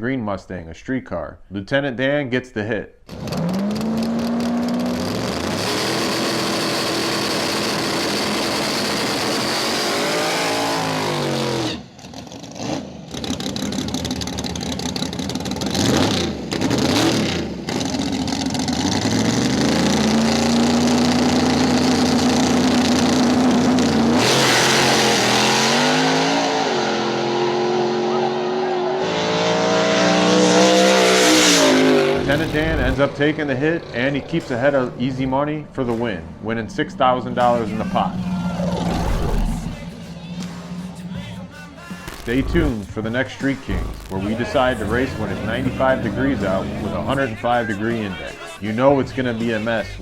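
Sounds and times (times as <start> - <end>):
engine revving: 3.1 - 48.1
drag car engines at full throttle: 3.1 - 50.0
car sweeping past: 37.2 - 41.1.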